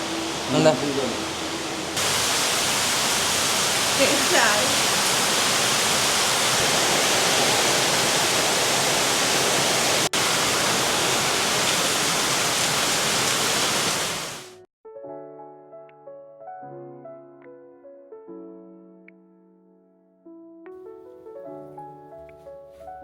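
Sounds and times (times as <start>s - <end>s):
soft piano music: 0.0s - 2.0s, 14.8s - 23.0s
heavy rain: 0.0s - 14.6s.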